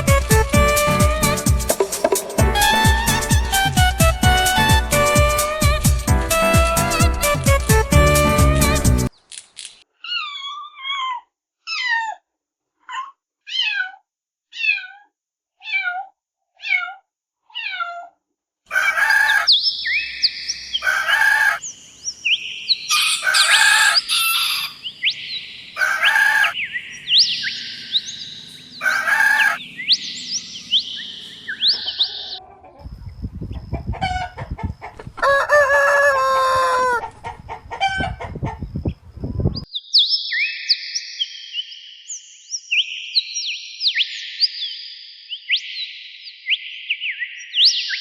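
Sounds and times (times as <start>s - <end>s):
chickens calling loudly: 0.0s - 9.0s, 18.7s - 39.0s
short falling calls: 0.6s - 8.8s
short high chicken calls: 0.7s - 7.4s, 22.9s - 24.8s, 34.0s - 38.6s.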